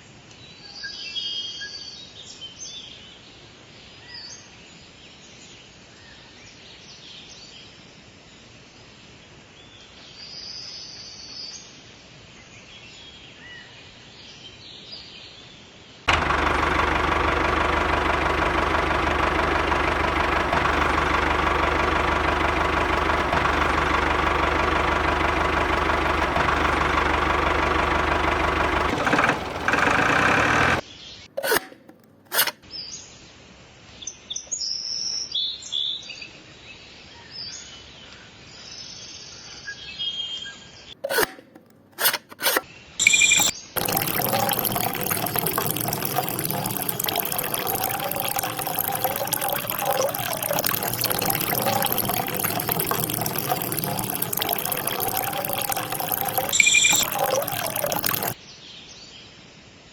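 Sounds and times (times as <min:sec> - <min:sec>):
small motor running: 0:16.1 - 0:30.8, 0:42.4 - 0:58.4
bird chirps: 0:43.0 - 0:43.5.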